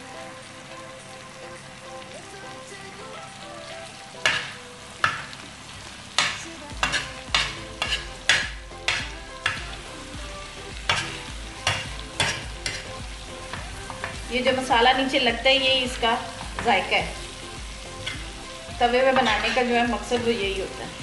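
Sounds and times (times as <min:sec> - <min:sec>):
food sizzling: 0:00.0 - 0:21.0
metal spoon scraping: 0:06.8 - 0:09.6, 0:10.9 - 0:13.0.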